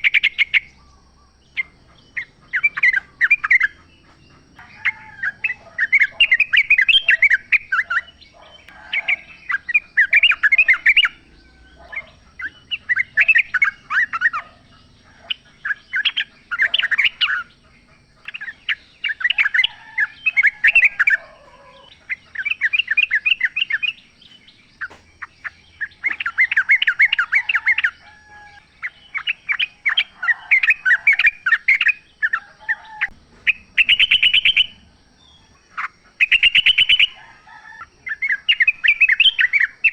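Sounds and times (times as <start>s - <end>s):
birds chattering song: 0.0s - 39.9s
faint lower bird calls: 0.0s - 39.9s.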